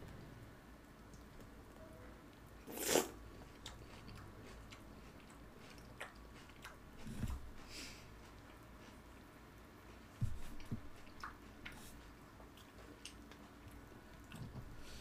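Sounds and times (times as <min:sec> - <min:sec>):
quiet chewing: 0:01.0 - 0:15.0
crunchy cereal bite: 0:02.7 - 0:03.2.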